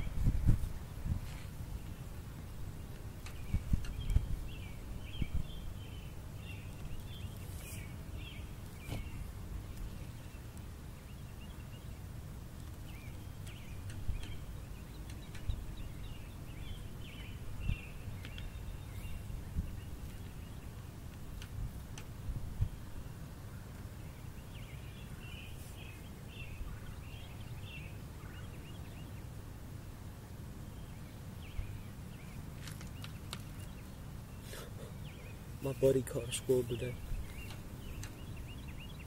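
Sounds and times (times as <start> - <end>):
birds chirping: 1.4 - 29.4, 30.6 - 39.0.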